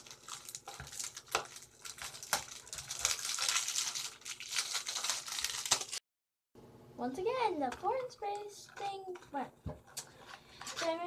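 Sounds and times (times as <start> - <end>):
small items rustling and clattering: 0.0 - 6.0, 9.9 - 11.0.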